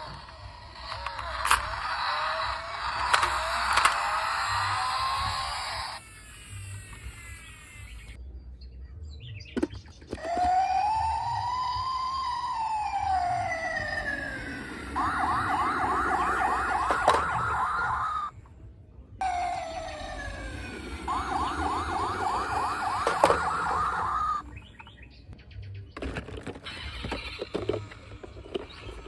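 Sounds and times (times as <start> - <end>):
electronic siren wailing and yelping: 10.2 - 18.3, 19.2 - 24.5.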